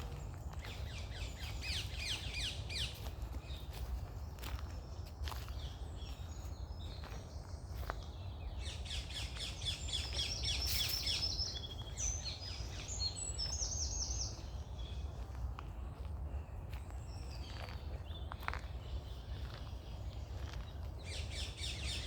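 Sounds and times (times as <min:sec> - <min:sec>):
songbirds singing: 0:00.0 - 0:22.0.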